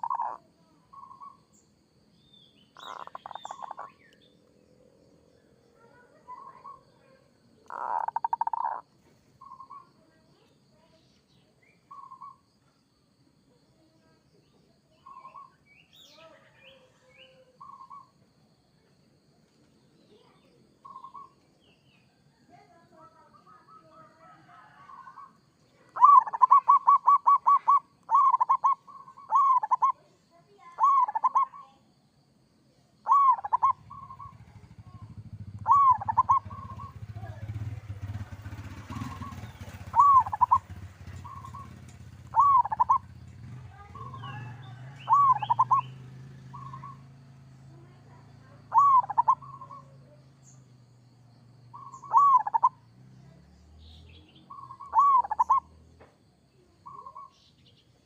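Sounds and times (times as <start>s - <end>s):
dove cooing: 0.0s - 1.4s, 2.8s - 4.0s, 5.9s - 8.8s, 23.6s - 30.0s, 30.6s - 31.6s, 33.0s - 47.0s, 48.6s - 50.0s, 51.7s - 52.8s, 54.5s - 55.7s
low steady rumble: 33.3s - 52.2s.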